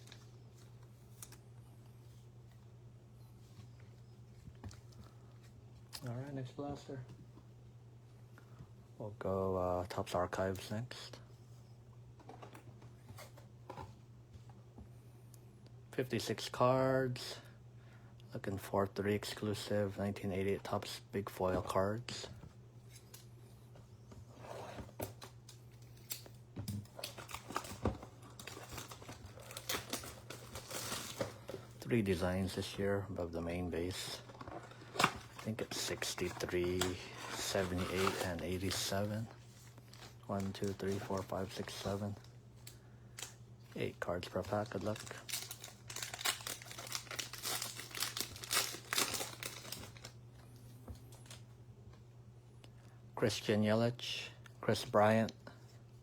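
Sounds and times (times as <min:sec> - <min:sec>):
plastic wrapping crinkling and tearing: 0:26.0 - 0:31.6, 0:34.0 - 0:42.2, 0:43.2 - 0:50.2.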